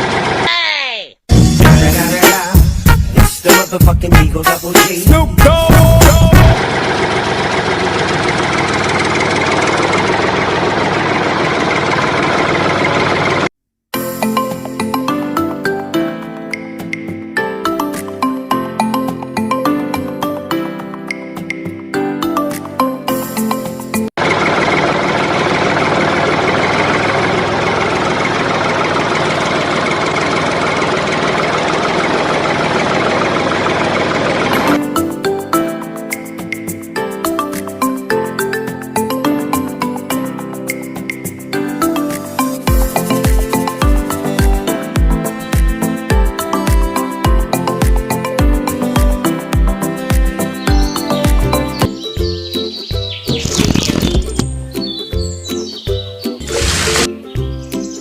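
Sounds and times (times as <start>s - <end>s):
small engine idling: 0.0s - 0.4s, 6.6s - 13.5s, 24.2s - 34.8s.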